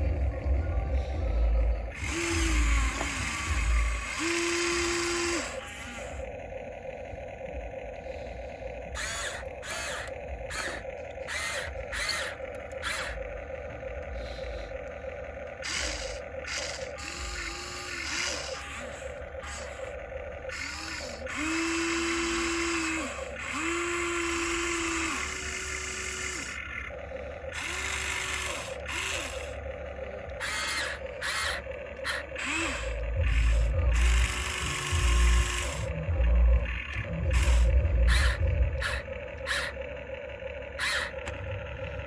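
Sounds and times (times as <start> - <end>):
heavy low thumps and rumbling: 0.0 - 4.1, 32.4 - 38.9
toy excavator motors whirring: 0.0 - 42.0.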